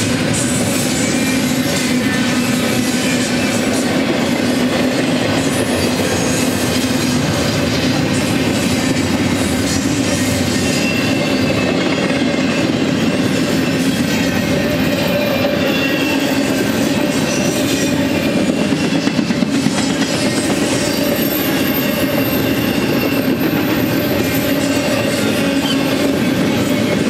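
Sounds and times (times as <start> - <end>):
train wheels rumbling on rails: 0.0 - 27.0
high wheel squeals: 5.4 - 27.0.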